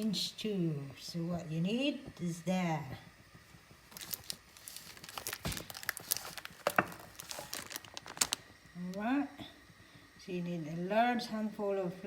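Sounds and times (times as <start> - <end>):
packaging crinkling: 3.8 - 8.5.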